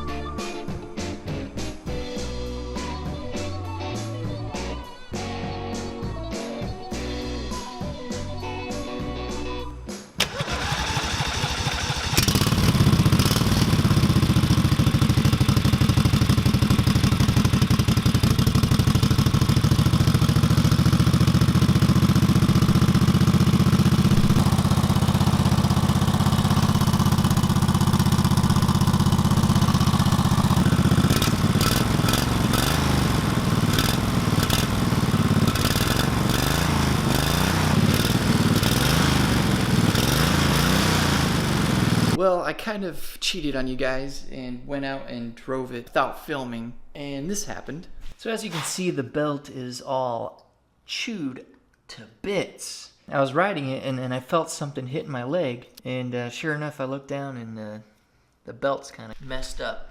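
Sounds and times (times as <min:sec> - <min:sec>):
minibike engine running: 0:10.2 - 0:42.2.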